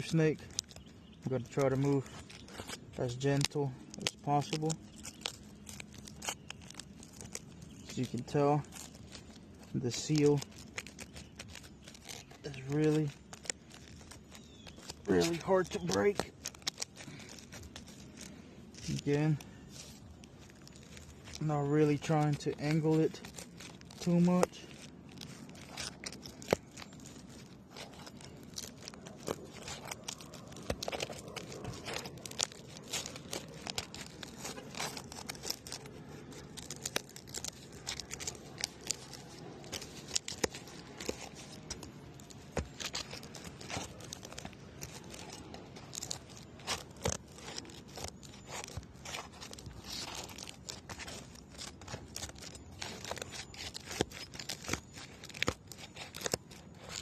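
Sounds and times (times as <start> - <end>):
shingle crackling and tearing: 0.0 - 57.0.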